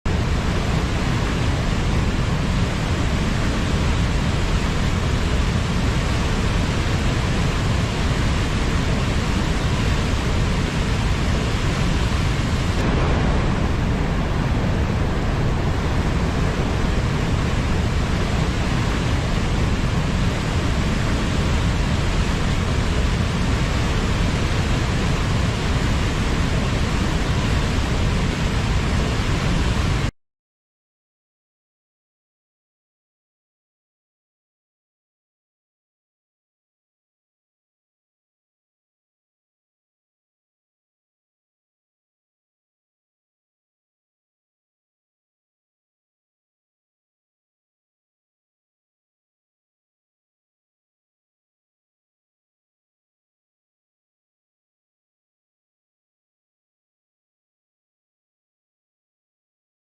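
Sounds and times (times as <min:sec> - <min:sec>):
waterfall rushing: 0:00.1 - 0:30.1.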